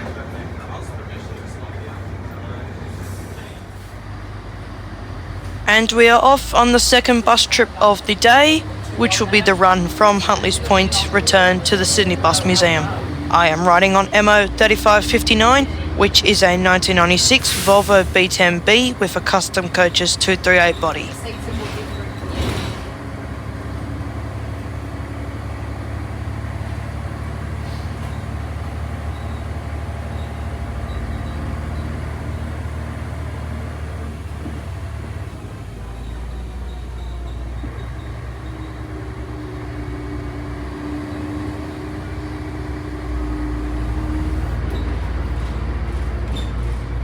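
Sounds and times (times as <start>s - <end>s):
bus diesel engine running: 0.0s - 47.0s.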